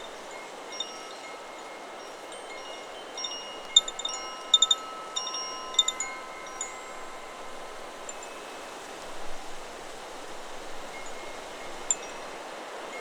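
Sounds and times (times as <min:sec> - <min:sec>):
wind chime ringing: 0:00.0 - 0:09.4
rush of wind: 0:00.0 - 0:13.0.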